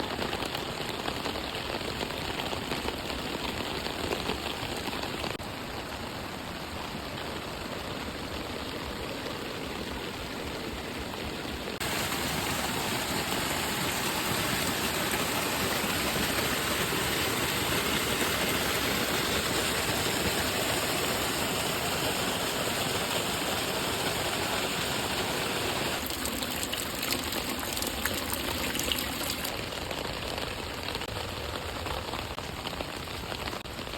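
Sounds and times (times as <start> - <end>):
rain: 0.0 - 33.9
running water: 21.6 - 31.4.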